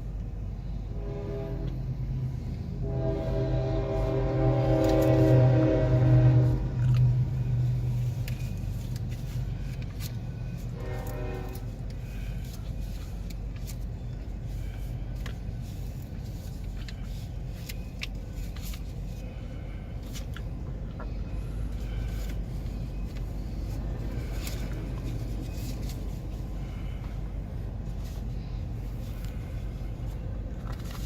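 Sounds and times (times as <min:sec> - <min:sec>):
freight train rumbling past: 0:00.0 - 0:09.6, 0:10.2 - 0:12.4.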